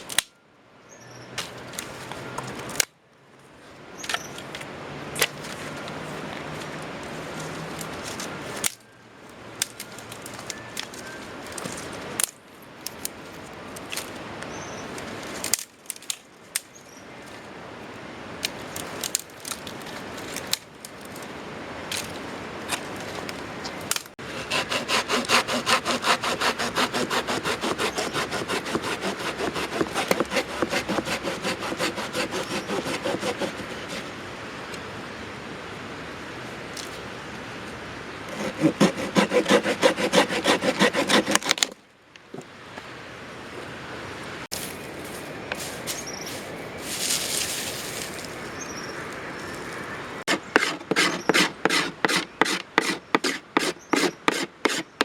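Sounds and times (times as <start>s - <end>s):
hand saw cutting wood: 24.2s - 34.2s, 38.3s - 41.8s, 50.3s - 55.0s.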